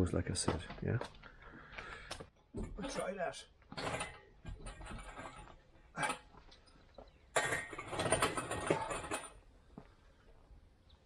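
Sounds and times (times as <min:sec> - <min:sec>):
metal clinking and rattling: 0:03.7 - 0:06.3, 0:07.3 - 0:09.5.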